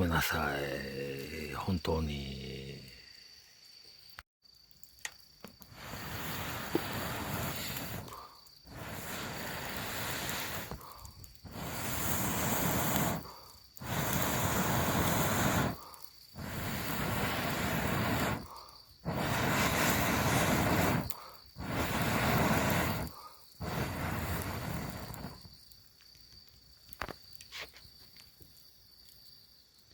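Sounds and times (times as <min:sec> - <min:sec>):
insect trill: 0:00.0 - 0:29.9
rushing outdoor noise: 0:05.7 - 0:08.1, 0:08.7 - 0:10.8, 0:11.4 - 0:15.8, 0:16.4 - 0:25.4.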